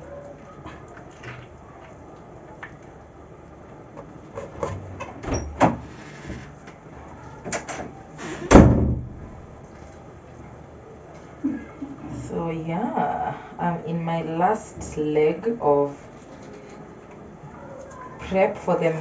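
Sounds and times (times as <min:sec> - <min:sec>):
door banging shut: 0:07.4 - 0:09.5.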